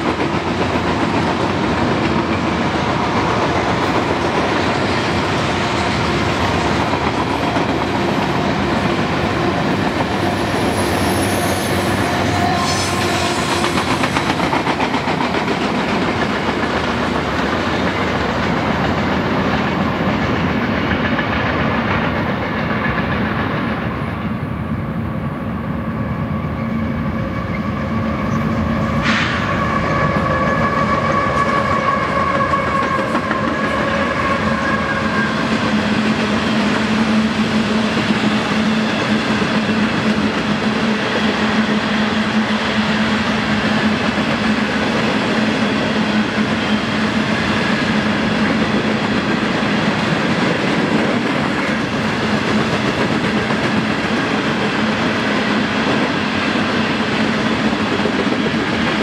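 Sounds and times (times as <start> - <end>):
wheels clickety-clack: 0.0 - 5.4, 13.5 - 24.0, 47.2 - 56.2
freight train rolling on rails: 0.0 - 59.0.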